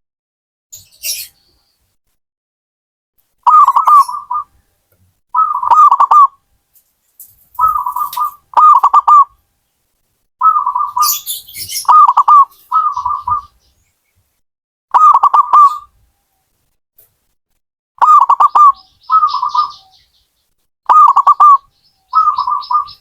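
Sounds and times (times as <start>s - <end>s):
dove cooing: 3.5s - 4.5s, 5.4s - 6.4s, 7.6s - 9.4s, 10.4s - 13.6s, 14.9s - 15.9s, 18.0s - 20.0s, 20.9s - 23.0s
faint high chirps: 7.6s - 9.2s.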